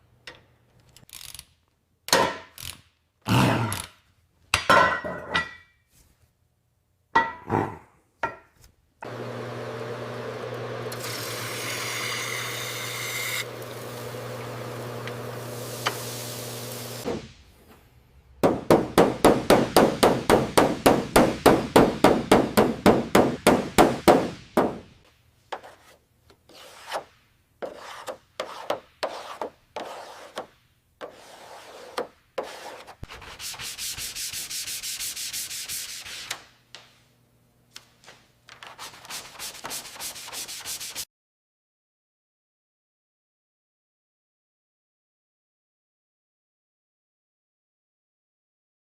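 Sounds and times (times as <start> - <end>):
hand sanding strokes: 25.6 - 36.4, 38.7 - 41.1.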